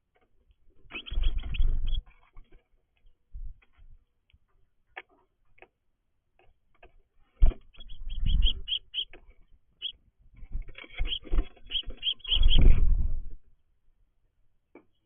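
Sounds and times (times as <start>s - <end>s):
birds chirping: 0.8s - 2.4s, 7.4s - 10.0s, 10.7s - 12.8s.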